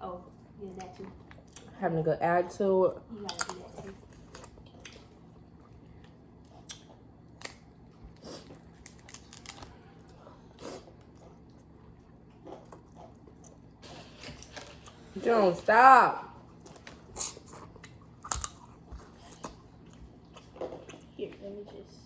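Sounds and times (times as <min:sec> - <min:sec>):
person chewing food: 0:03.2 - 0:15.2, 0:16.4 - 0:21.2.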